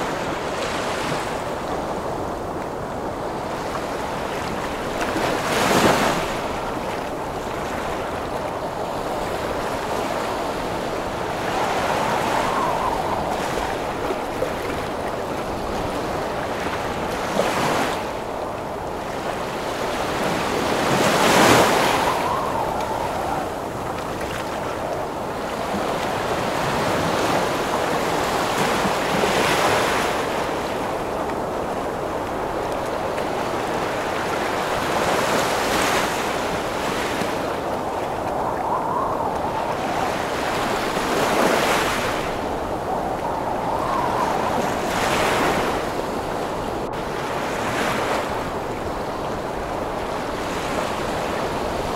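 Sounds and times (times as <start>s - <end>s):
waves crashing: 0.0s - 51.9s
wind rushing: 10.8s - 14.6s, 21.2s - 24.8s, 37.5s - 46.9s.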